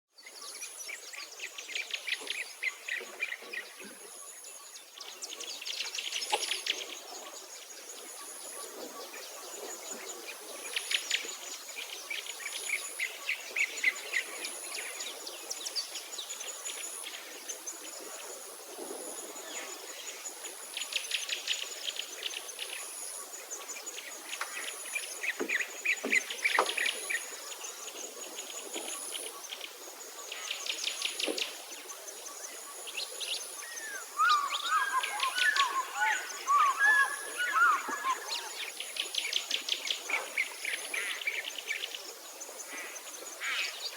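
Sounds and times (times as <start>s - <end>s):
songbirds chirping and trilling: 30.2s - 43.9s
pulsing insect call: 33.6s - 39.2s.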